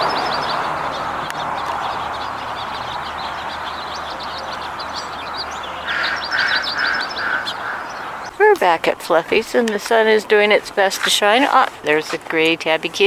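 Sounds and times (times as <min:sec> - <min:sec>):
short repeated bird calls: 0:00.0 - 0:08.3
small birds chirping: 0:00.0 - 0:13.0
traffic noise: 0:00.0 - 0:13.0.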